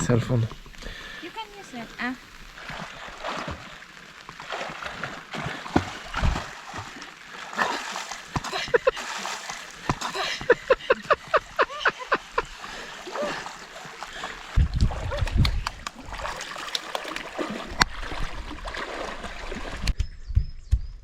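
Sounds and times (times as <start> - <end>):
water splashing around swimmer: 0.6 - 20.0
low thumps on microphone: 19.9 - 21.0.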